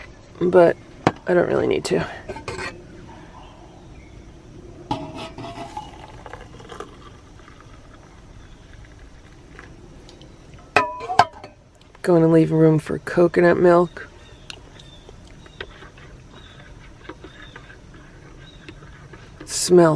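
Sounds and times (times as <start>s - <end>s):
utensil clinking against cup: 5.0s - 7.2s
hot water pouring into cup: 5.4s - 10.4s.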